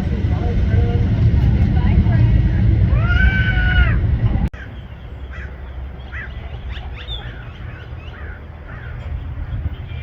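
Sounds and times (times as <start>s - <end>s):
steady low rumble: 0.0s - 10.0s
small birds chirping: 4.6s - 10.0s.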